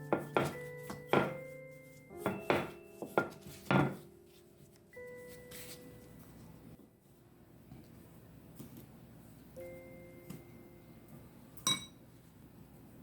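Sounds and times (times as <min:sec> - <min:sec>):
background music with held notes: 0:00.0 - 0:06.8, 0:09.6 - 0:11.4.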